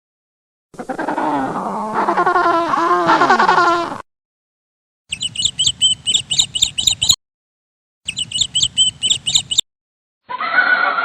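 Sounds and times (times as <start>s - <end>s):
songbird chirping: 5.1s - 7.2s, 8.1s - 9.7s
horse whinny: 10.3s - 11.0s.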